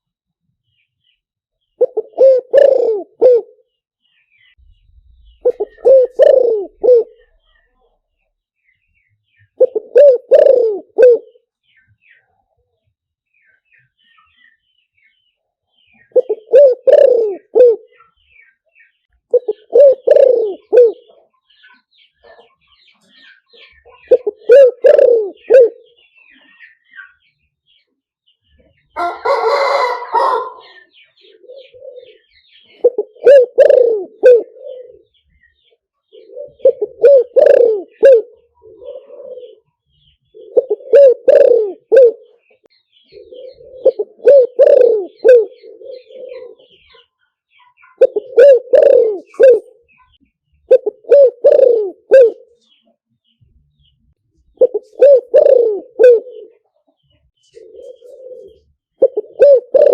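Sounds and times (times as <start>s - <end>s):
dove cooing: 1.8s - 3.7s, 4.6s - 7.8s, 9.5s - 11.5s, 16.0s - 18.2s, 19.3s - 21.6s, 23.1s - 26.7s, 29.0s - 47.1s, 47.8s - 52.8s, 54.5s - 56.8s, 57.4s - 59.9s.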